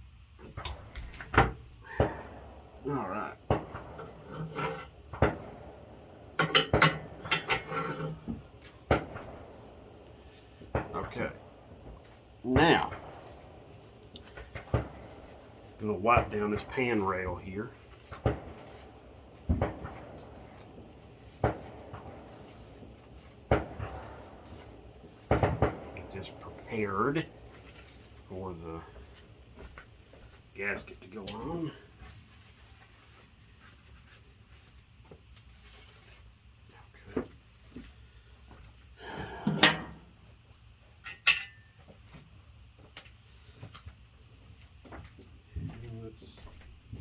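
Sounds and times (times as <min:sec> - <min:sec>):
fireworks bangs: 0:00.6 - 0:31.8
rustle on a workbench: 0:02.4 - 0:38.9.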